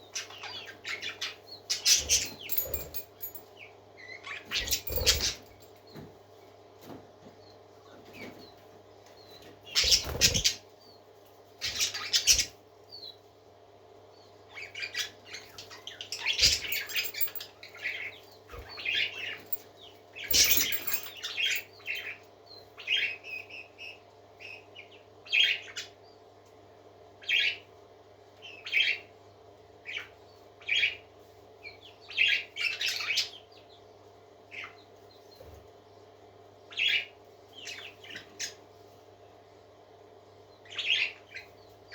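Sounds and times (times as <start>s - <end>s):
parakeets chirping and chattering: 0.0s - 3.4s, 4.0s - 5.7s, 9.7s - 10.6s, 11.6s - 12.6s, 14.5s - 19.6s, 20.2s - 22.2s, 27.2s - 27.6s, 36.7s - 38.6s, 40.6s - 41.5s.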